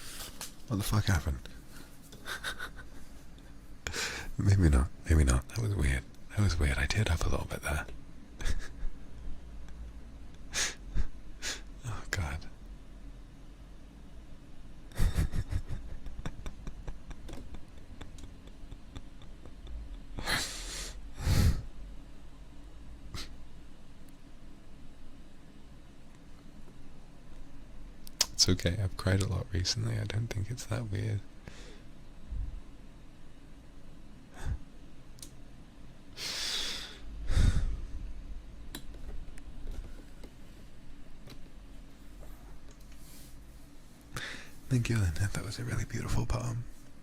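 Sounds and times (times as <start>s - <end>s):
man breathing heavily: 3.8s - 4.4s, 20.1s - 21.8s, 34.3s - 34.7s, 36.2s - 38.1s, 44.1s - 44.7s
person sniffing: 10.5s - 10.8s, 23.1s - 23.4s, 36.2s - 37.8s
heavy breath out: 36.2s - 38.0s, 44.2s - 44.6s.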